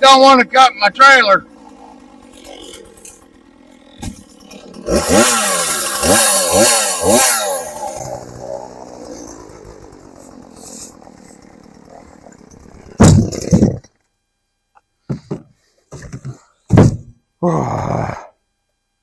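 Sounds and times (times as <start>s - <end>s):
chainsaw revving: 0.0s - 13.9s.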